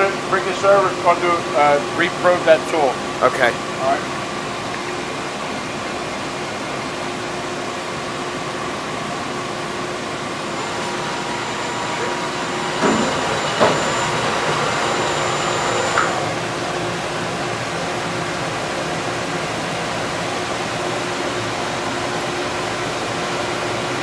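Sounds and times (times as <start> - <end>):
cnc machine humming: 0.0 - 24.0
thin high whine: 10.5 - 16.9.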